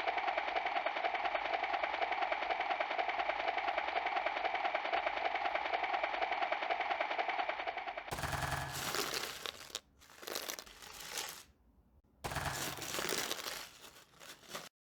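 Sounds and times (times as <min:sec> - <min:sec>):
crackling rustling noise: 0:08.1 - 0:11.5, 0:12.3 - 0:14.8.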